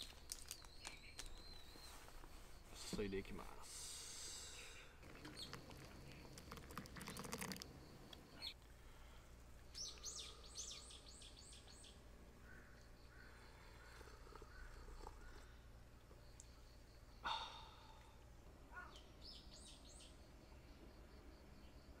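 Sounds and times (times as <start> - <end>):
bird chirping: 0.4 - 2.2, 4.6 - 7.6, 9.7 - 15.6, 18.7 - 20.3.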